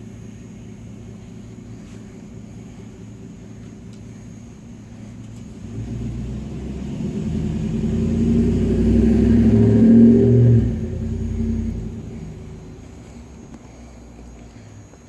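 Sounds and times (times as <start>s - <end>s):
vehicle passing by: 5.5s - 13.4s.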